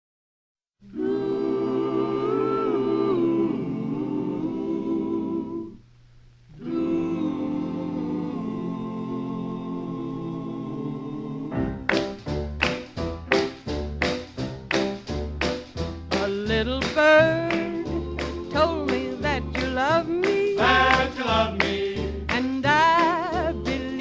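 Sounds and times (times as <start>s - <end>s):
vocal group humming in harmony: 0.8s - 5.8s, 6.5s - 11.9s, 17.4s - 24.0s.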